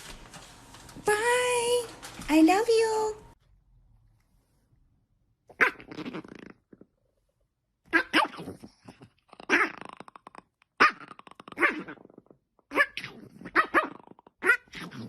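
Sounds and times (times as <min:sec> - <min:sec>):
dog barking and yowling: 0:07.9 - 0:08.5, 0:12.7 - 0:14.9.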